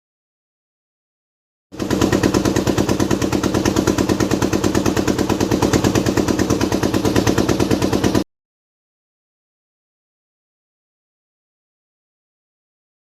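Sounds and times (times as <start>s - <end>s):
motorcycle engine running: 1.7s - 8.3s.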